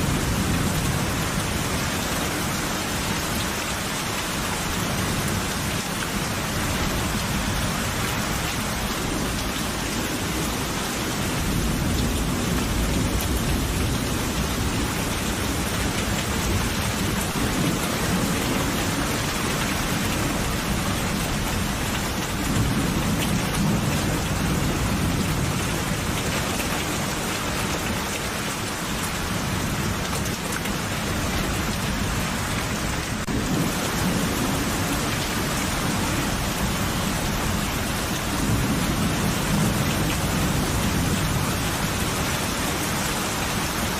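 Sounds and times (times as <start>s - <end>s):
heavy rain: 0.0s - 43.9s
rolling thunder: 33.2s - 42.0s.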